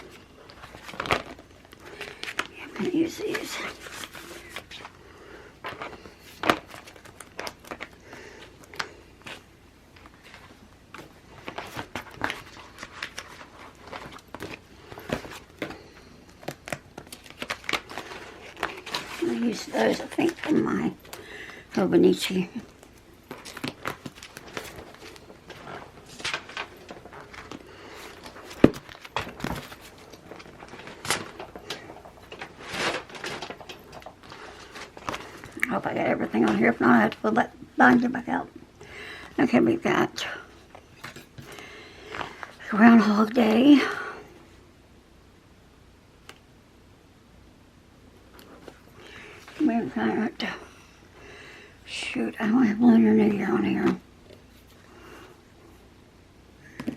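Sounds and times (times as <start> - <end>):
paper rustling and crinkling: 0.0 - 38.1, 40.7 - 42.6.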